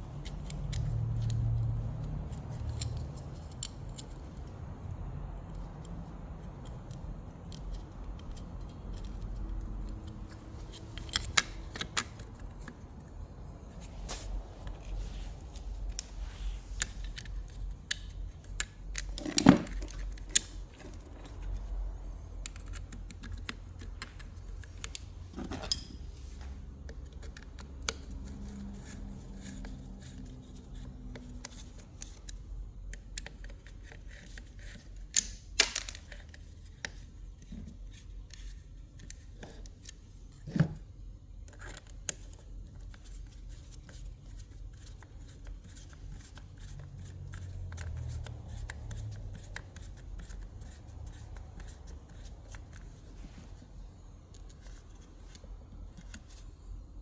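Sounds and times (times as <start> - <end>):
metal parts clicking and clinking: 0.2 - 4.5, 16.8 - 21.8, 22.4 - 26.1, 34.7 - 36.3.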